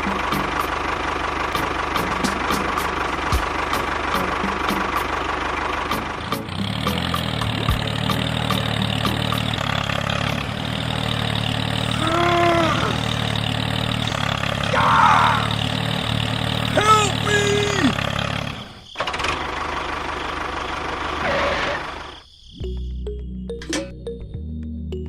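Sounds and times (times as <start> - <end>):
small engine running: 0.0 - 22.2.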